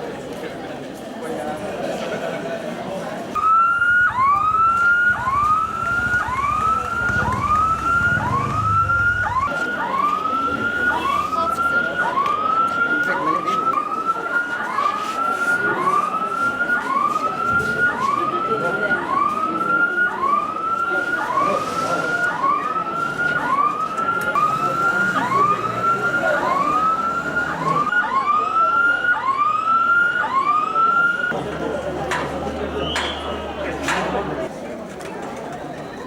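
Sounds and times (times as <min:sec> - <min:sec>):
siren whooping: 0:03.4 - 0:31.4.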